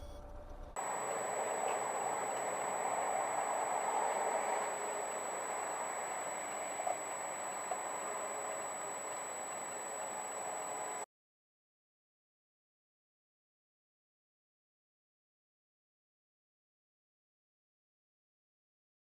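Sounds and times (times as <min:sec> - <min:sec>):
car engine and road noise: 0:00.8 - 0:11.0
thin high whine: 0:00.8 - 0:11.1.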